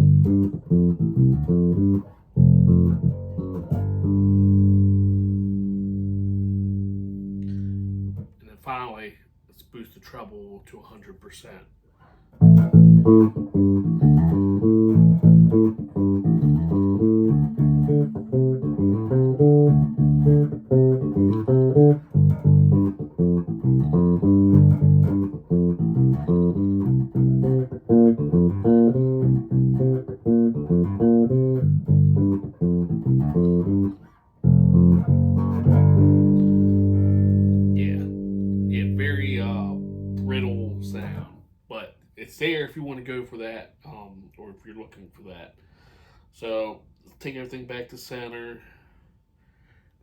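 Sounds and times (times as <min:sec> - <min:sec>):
electric bass plucked notes: 0:00.0 - 0:08.3, 0:12.4 - 0:41.4.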